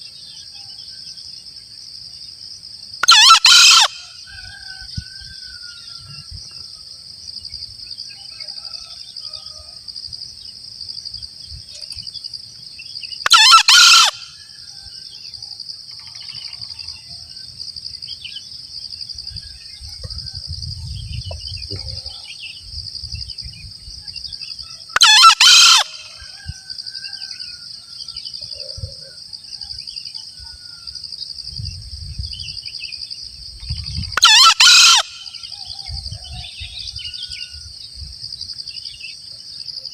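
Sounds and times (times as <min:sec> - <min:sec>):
junglefowl crowing: 0:03.0 - 0:06.3, 0:13.2 - 0:14.9, 0:24.9 - 0:29.2, 0:34.2 - 0:37.5.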